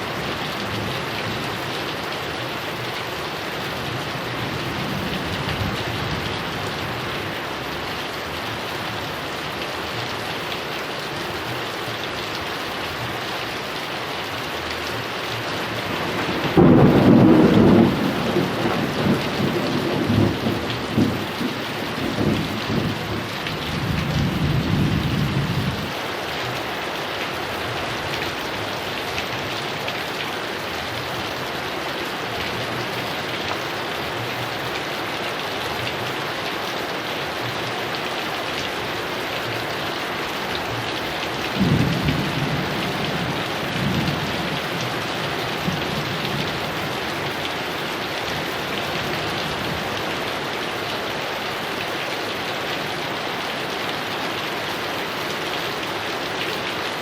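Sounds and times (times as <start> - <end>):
heavy rain falling: 0.0 - 57.0
thunder rumbling: 15.8 - 25.9, 41.4 - 47.0.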